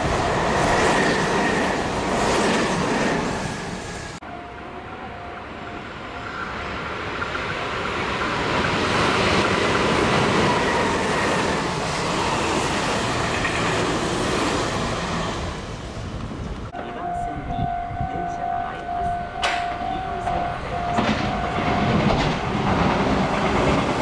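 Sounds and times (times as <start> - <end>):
train wheels on rails: 6.1 - 24.0.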